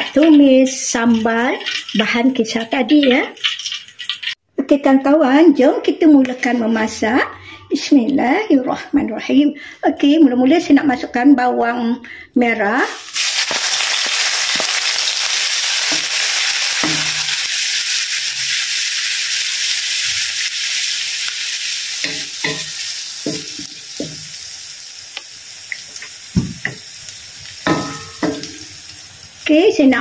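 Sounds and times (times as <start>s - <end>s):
shallots sizzling in oil: 0.0s - 4.4s, 12.8s - 30.0s.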